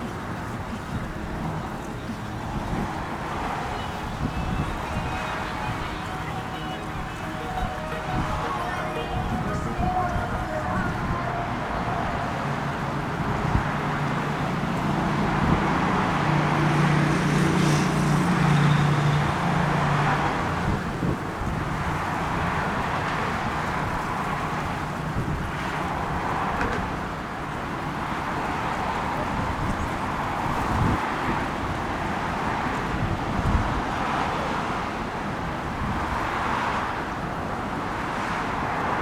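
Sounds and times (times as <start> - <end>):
vehicle engine hum passing: 0.0 - 27.0
road traffic noise: 0.0 - 39.0.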